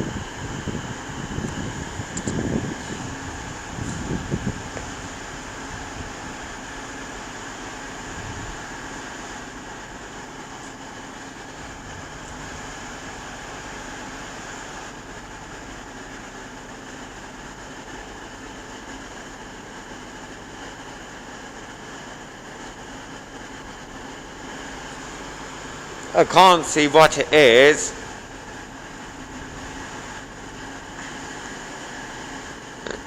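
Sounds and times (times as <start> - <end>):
train mechanical hum: 0.0 - 33.0.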